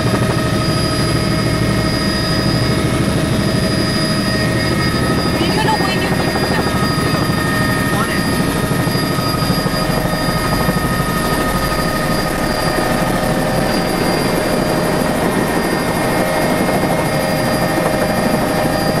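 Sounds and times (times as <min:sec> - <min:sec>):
helicopter engine and rotor drone: 0:00.0 - 0:19.0.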